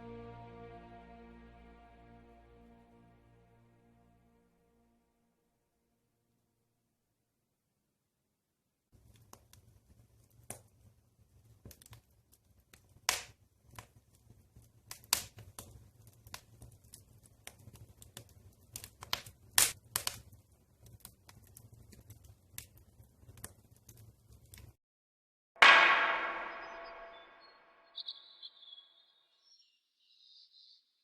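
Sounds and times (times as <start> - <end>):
wood fire crackling: 9.0 - 24.8.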